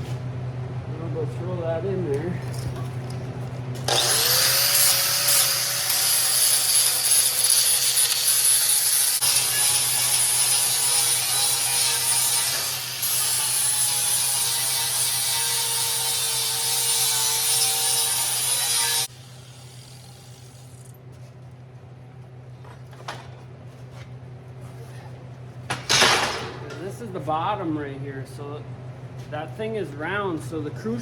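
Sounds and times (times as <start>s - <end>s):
angle grinder grinding metal: 3.8s - 20.9s.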